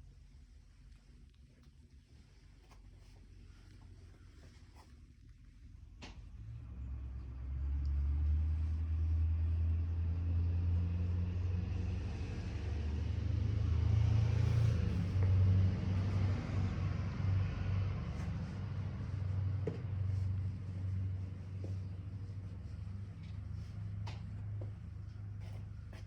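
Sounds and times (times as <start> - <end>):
rotary engine rumbling: 6.2 - 26.0.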